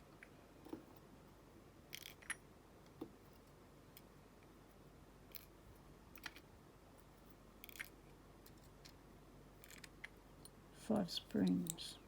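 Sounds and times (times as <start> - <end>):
faint clicks of small lock parts: 1.9 - 4.5, 5.3 - 6.5, 7.2 - 9.0, 9.6 - 10.6.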